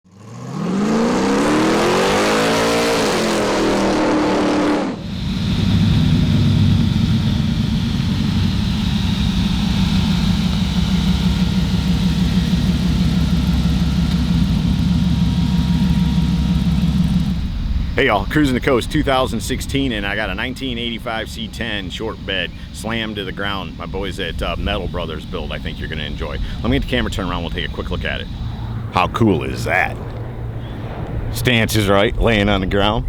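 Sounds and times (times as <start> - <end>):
engine revving: 0.1 - 33.0
lumpy engine idle: 5.0 - 30.9.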